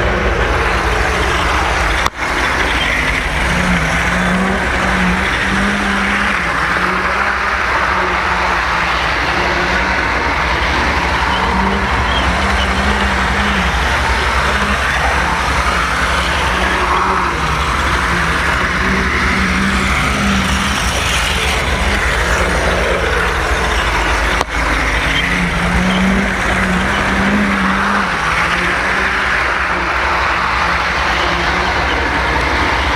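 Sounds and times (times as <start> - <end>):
model train wheels on rail: 0.0 - 32.9
motor hum: 0.0 - 32.9.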